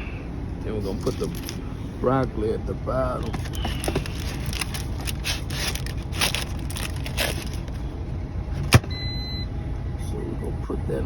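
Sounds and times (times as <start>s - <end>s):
low engine hum: 0.0s - 11.0s
food container rustling and crunching: 0.9s - 1.6s, 3.1s - 8.0s.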